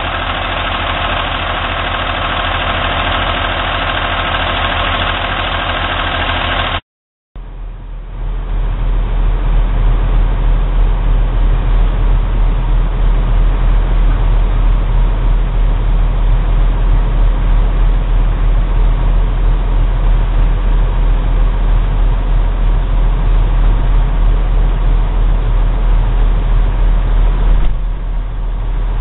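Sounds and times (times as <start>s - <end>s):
truck diesel engine running: 0.0s - 6.8s, 7.4s - 29.0s.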